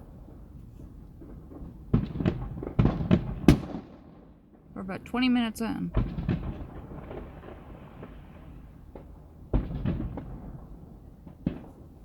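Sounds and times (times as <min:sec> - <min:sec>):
distant firework booms: 0:01.2 - 0:04.8, 0:05.9 - 0:11.9.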